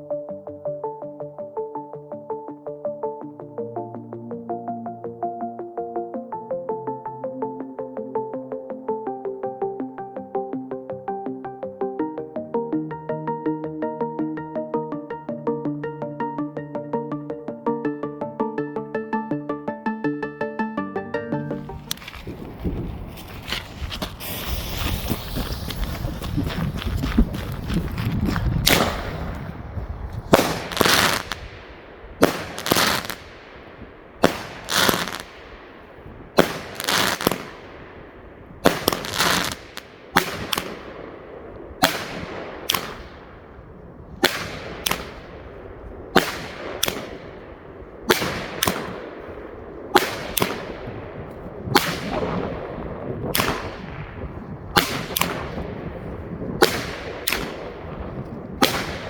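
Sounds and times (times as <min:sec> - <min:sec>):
fireworks bangs with echo: 0:28.6 - 0:29.6, 0:30.2 - 0:33.4, 0:34.1 - 0:35.8, 0:36.4 - 0:38.0, 0:38.6 - 0:43.6, 0:46.1 - 0:51.1, 0:51.7 - 0:59.0.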